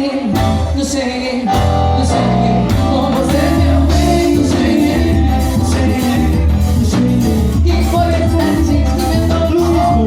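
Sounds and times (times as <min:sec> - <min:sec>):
live band music: 0:00.0 - 0:10.0
person singing: 0:00.0 - 0:10.0
percussion hits: 0:02.7 - 0:07.5.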